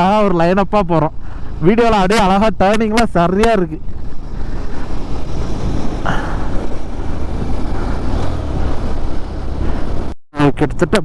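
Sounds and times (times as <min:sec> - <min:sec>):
wind rush on microphone: 0:03.7 - 0:10.2
motorcycle engine running: 0:03.8 - 0:10.2.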